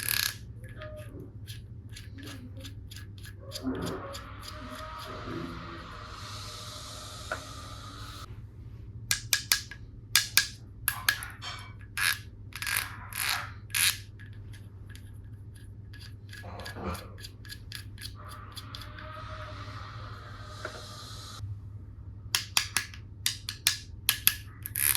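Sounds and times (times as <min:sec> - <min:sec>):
steady hiss: 0:04.8 - 0:08.3.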